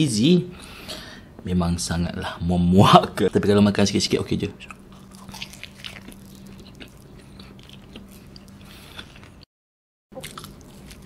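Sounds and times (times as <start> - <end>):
faint steady hum: 0.0 - 9.4
chewing mouth clicks and smacks: 4.6 - 9.4.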